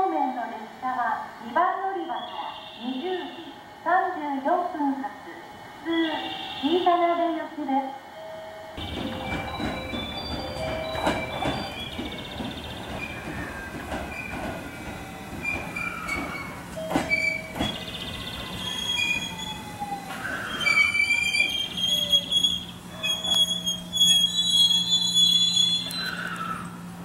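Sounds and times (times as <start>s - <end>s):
train whine falling in pitch: 8.1s - 26.8s
train wheels and brakes squealing: 8.2s - 26.9s
wheels clacking over rail joints: 8.8s - 24.8s.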